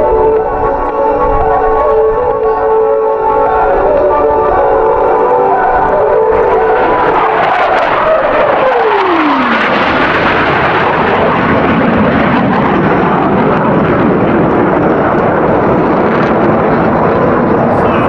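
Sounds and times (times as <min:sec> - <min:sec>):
jet aircraft roaring past: 0:00.0 - 0:18.0.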